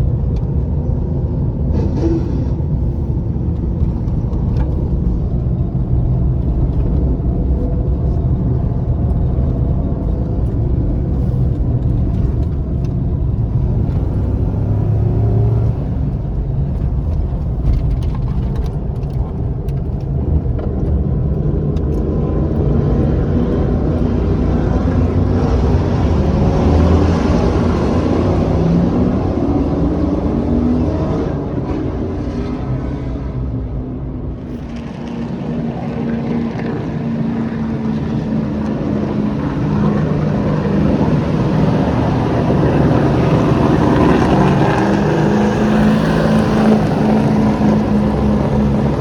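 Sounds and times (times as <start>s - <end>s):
road rumble: 0.0s - 49.0s
truck engine: 0.0s - 49.0s.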